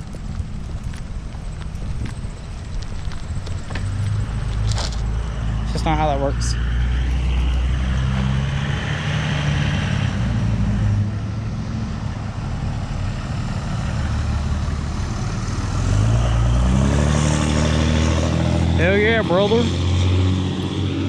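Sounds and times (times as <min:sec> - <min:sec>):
vehicle engine running: 0:00.0 - 0:08.9, 0:17.3 - 0:21.0
tyre and road noise: 0:00.0 - 0:21.0.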